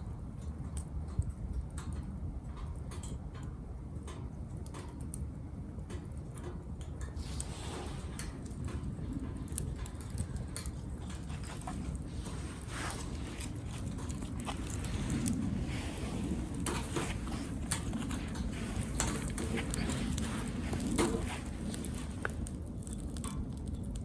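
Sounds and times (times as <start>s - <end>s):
low rumble of fire: 0.0s - 24.0s
wood fire crackling and popping: 0.0s - 24.0s.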